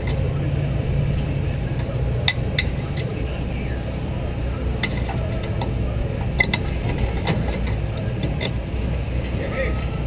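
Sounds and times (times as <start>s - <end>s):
race car engine rumbling: 0.0s - 10.0s.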